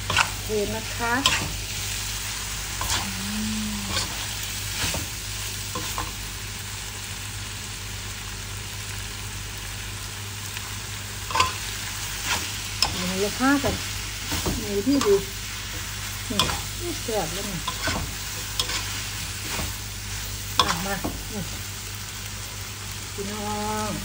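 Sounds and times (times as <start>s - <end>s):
spatula scraping pan: 0.0s - 1.7s, 2.3s - 5.1s, 11.3s - 21.6s
stir-fry sizzling in wok: 0.0s - 24.0s.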